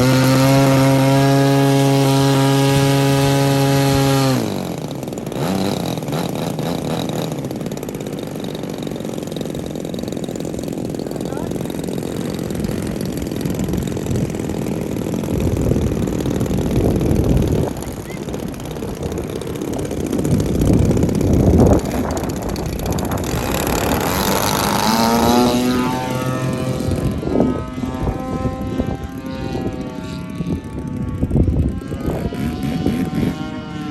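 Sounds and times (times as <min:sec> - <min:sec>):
model airplane engine and propeller: 0:00.0 - 0:33.9
low gusty rumble: 0:09.4 - 0:33.1.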